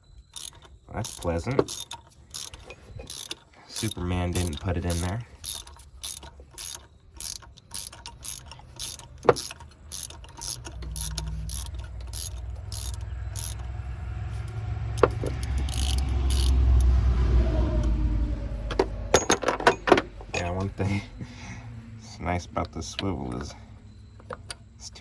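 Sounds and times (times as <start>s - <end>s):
ratchet wrench clicking: 0.2s - 17.0s
low rumble: 10.6s - 21.8s.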